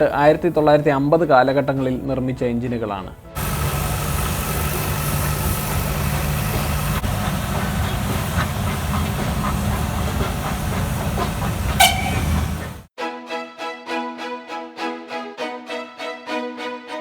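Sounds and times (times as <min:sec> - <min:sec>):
locomotive low rumble: 0:03.4 - 0:12.9
steam hissing: 0:03.4 - 0:12.9.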